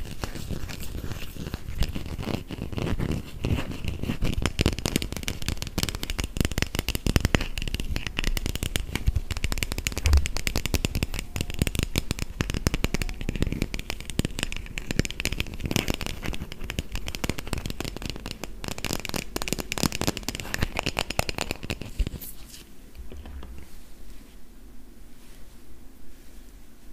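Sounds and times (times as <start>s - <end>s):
tapping on plastic toy food: 4.4s - 21.9s.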